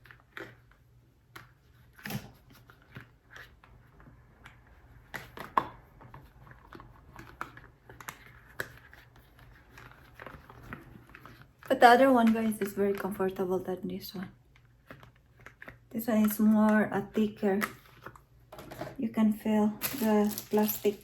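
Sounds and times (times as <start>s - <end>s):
plastic items clicking and rustling: 0.0s - 13.4s, 19.8s - 21.0s.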